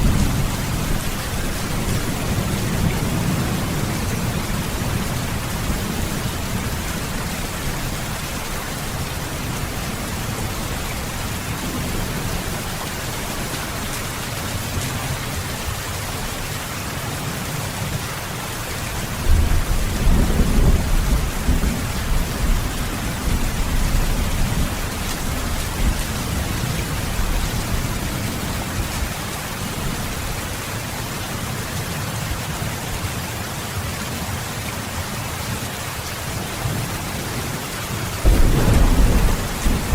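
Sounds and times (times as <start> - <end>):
thunder rumbling: 0.0 - 8.4, 19.3 - 28.1, 38.2 - 39.9
heavy rain falling: 0.0 - 39.9.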